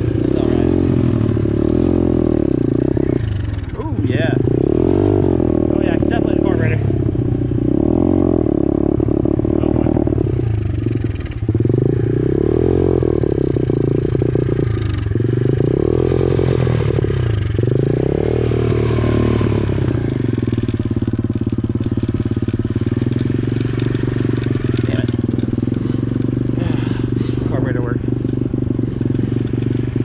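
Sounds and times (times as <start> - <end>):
dirt bike engine revving and idling: 0.0 - 30.0.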